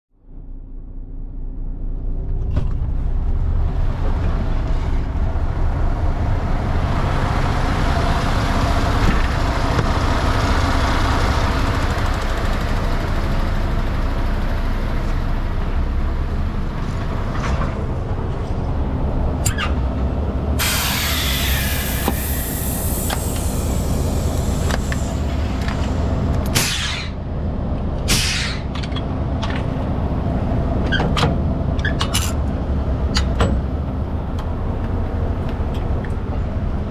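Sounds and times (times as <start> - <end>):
truck diesel engine running: 0.3 - 26.6
air brake hiss: 20.6 - 27.2, 28.1 - 28.7.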